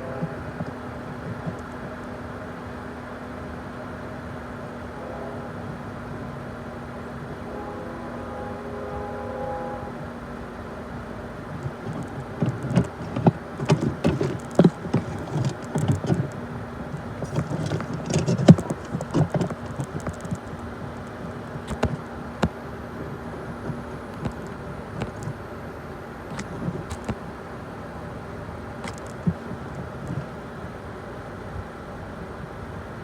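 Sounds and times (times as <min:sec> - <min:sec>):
train clicks and clanks: 0:00.0 - 0:05.0, 0:08.8 - 0:27.4, 0:28.6 - 0:31.2
freight train rumble: 0:00.0 - 0:33.0.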